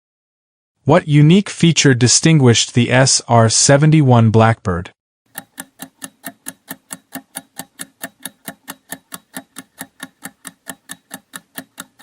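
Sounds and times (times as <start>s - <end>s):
quick clock-style ticking: 5.3s - 12.0s.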